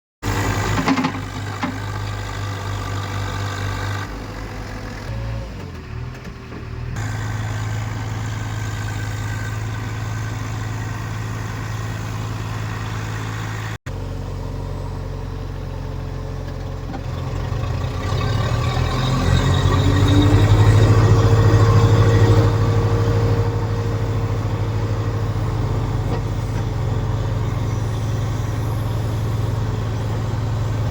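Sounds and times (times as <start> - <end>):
diesel engine running: 0.2 - 30.9
steady engine whine: 0.2 - 30.9.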